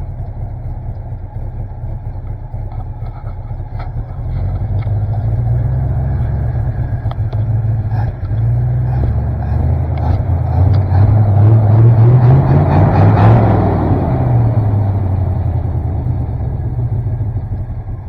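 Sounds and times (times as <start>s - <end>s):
dump truck engine revving: 3.7s - 18.0s.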